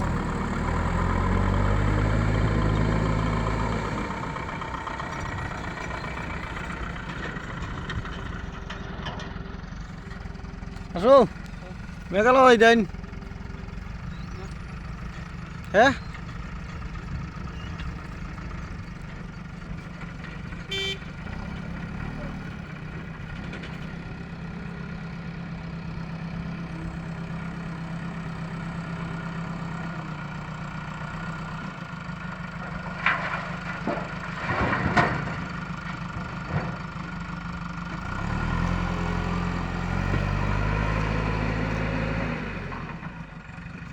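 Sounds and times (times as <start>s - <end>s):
heavy diesel engine running: 0.0s - 43.9s
horn toot: 20.7s - 21.1s.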